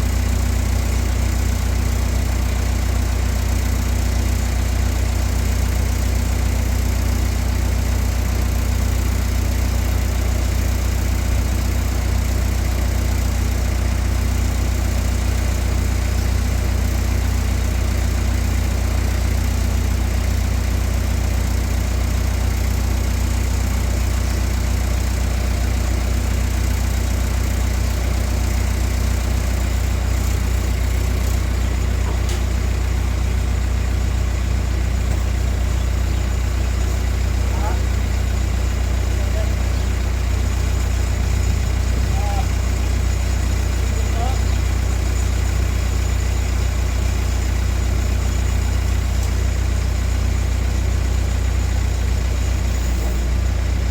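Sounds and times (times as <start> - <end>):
machine droning: 23.4 - 53.9.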